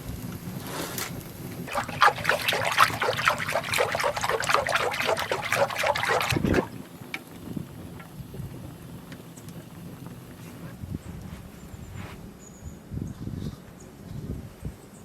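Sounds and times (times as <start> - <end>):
milk squirting into a pail: 1.7 - 7.2.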